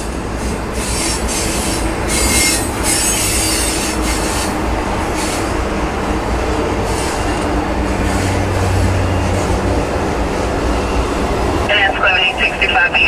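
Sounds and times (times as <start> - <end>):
train wheels rumbling on rails: 0.0 - 13.0
high-pitched wheel screech: 0.8 - 4.6.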